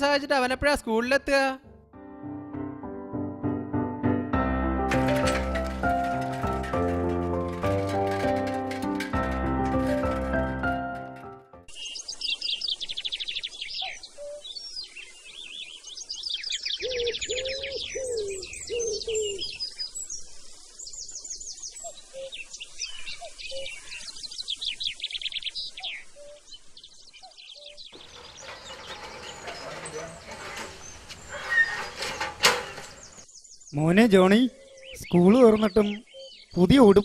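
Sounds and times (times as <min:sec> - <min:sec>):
birds chirping in high trills: 0:11.7 - 0:30.2, 0:32.9 - 0:37.0.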